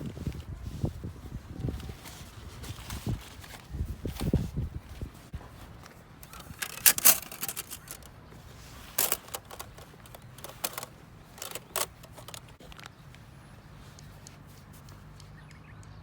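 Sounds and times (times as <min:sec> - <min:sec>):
metal gear clicking and clinking: 0:06.2 - 0:08.1, 0:08.9 - 0:12.6.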